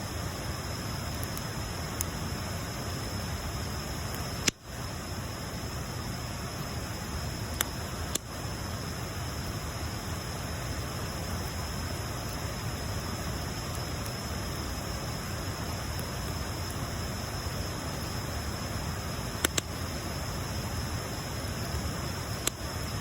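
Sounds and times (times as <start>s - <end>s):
wood bonfire burning: 0.0s - 23.0s
fire popping sharply: 18.9s - 20.0s.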